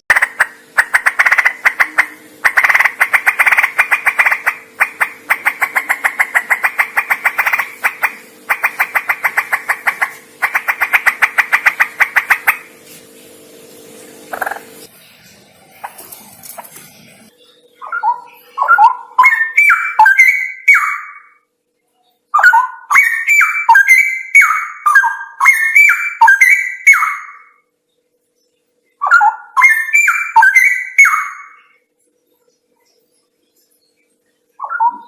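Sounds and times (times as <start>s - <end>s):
bulbul fluty warbling: 0.1s - 12.8s, 14.2s - 21.4s, 34.6s - 35.0s.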